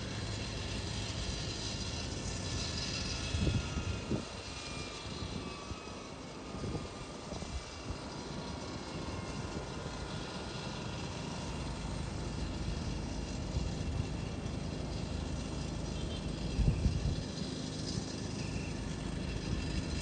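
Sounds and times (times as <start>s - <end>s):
airliner engines whining: 0.0s - 20.0s
wind buffeting microphone: 3.2s - 5.5s, 16.5s - 17.4s.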